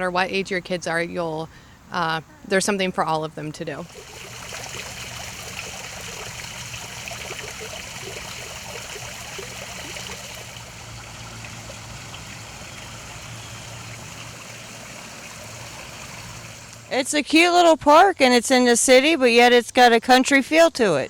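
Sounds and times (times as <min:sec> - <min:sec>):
creek trickling: 0:02.8 - 0:17.1.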